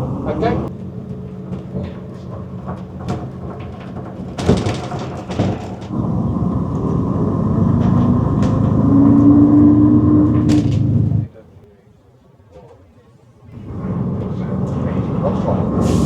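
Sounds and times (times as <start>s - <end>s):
bus engine running: 0.0s - 11.3s, 13.5s - 16.0s
loud clunks: 0.8s - 6.0s, 10.2s - 11.2s.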